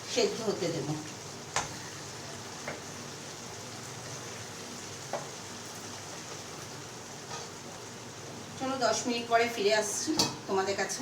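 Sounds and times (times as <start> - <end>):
curry sizzling in a pan: 0.0 - 11.0.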